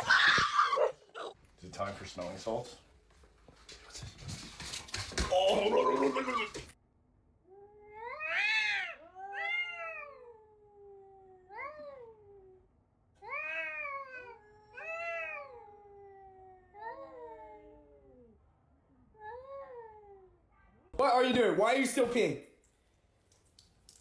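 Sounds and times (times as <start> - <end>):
cat yowling: 7.5 - 12.6, 13.2 - 18.4.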